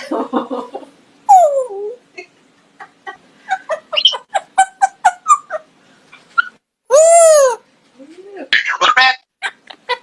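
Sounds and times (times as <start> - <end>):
parrot mimicking laughter: 3.7 - 5.7, 6.4 - 7.6.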